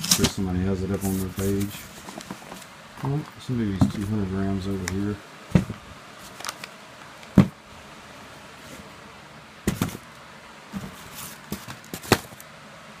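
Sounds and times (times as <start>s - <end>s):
cardboard boxes knocking: 7.4s - 7.6s, 9.7s - 10.0s.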